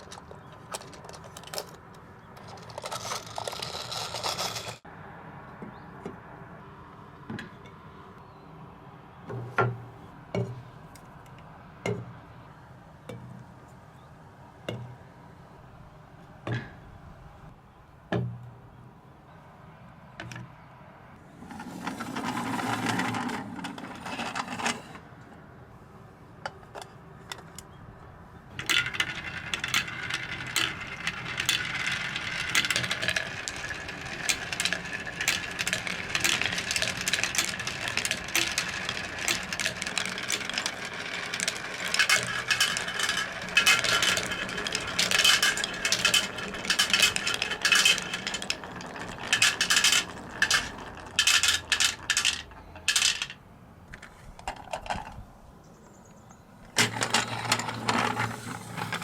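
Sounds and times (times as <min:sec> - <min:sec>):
marbles clacking on wooden track: 0:00.0 - 0:04.9, 0:21.4 - 0:25.0, 0:28.5 - 0:55.2, 0:56.8 - 0:59.0
marbles rolling along track: 0:00.0 - 0:04.9, 0:21.4 - 0:25.0, 0:28.5 - 0:55.2, 0:56.8 - 0:59.0.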